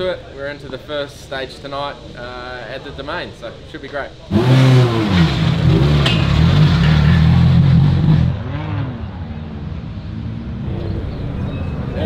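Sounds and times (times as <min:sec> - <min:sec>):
rally car engine idling: 0:04.3 - 0:08.4.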